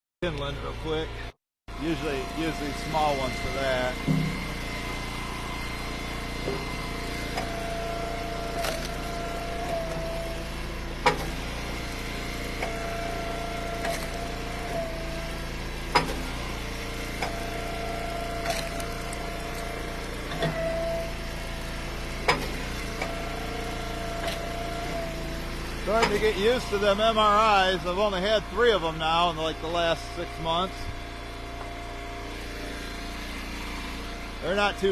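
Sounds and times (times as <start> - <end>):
hydraulic ram whine: 0.2 - 34.9
log splitter engine running: 0.2 - 34.9
wood splitting cracks: 8.5 - 9.7, 13.8 - 14.3, 18.4 - 20.2.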